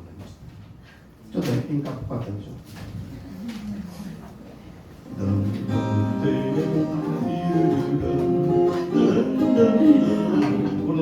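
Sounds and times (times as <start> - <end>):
acoustic guitar melody and chords: 5.1 - 11.0.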